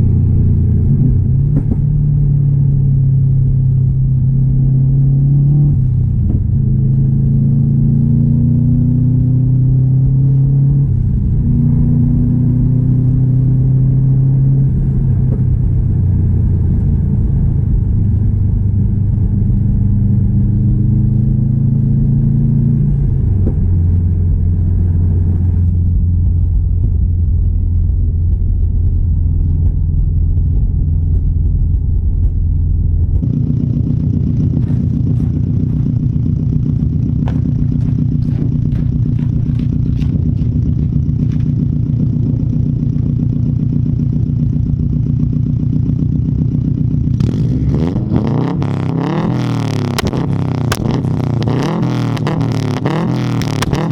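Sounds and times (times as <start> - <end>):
car engine rumbling: 0.0 - 53.9
scattered clicks: 49.9 - 50.9.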